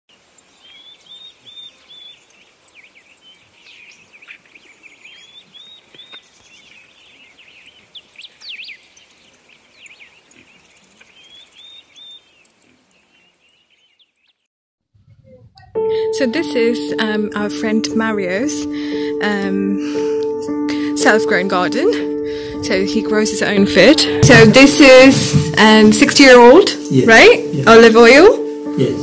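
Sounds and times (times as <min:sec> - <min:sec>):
birds singing and chirping: 0:00.1 - 0:14.5.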